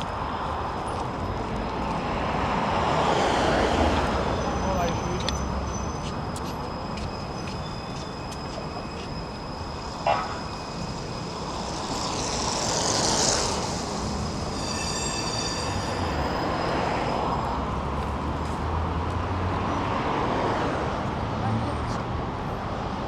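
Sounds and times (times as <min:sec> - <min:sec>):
city street traffic: 0:00.0 - 0:23.0
high whine: 0:06.6 - 0:16.4.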